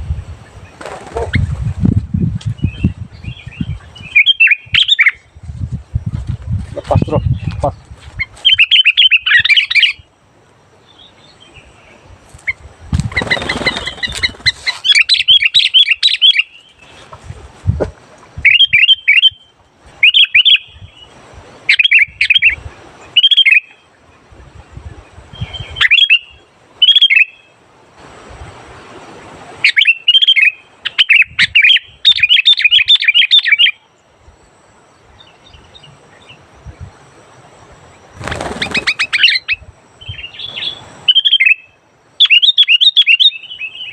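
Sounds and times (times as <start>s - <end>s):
bulbul chirping song: 2.5s - 5.3s, 6.9s - 10.1s, 10.8s - 17.0s, 18.4s - 23.9s, 25.4s - 27.6s, 29.6s - 34.0s, 38.4s - 43.9s.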